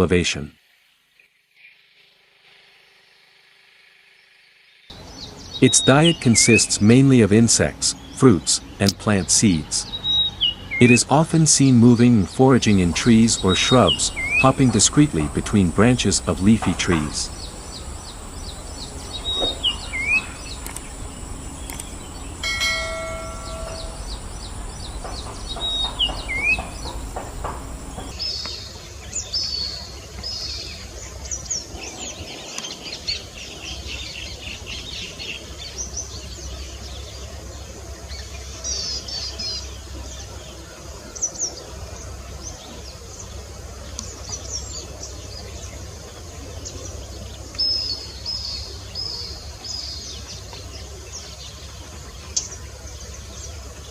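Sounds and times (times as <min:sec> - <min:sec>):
bird high repeated chirps: 0:05.0 - 0:07.0, 0:12.3 - 0:28.2
bird whistled notes: 0:18.4 - 0:20.7, 0:22.8 - 0:27.1.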